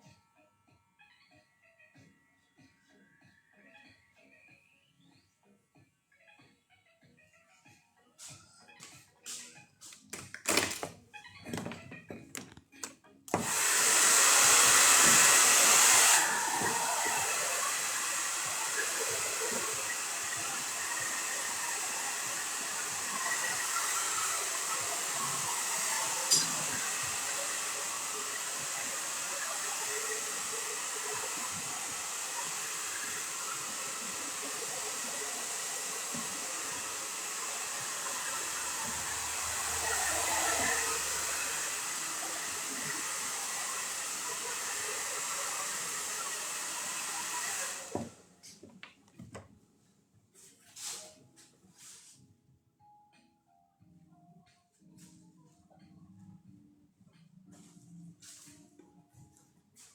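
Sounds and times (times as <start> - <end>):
hair dryer blowing: 13.3 - 48.2.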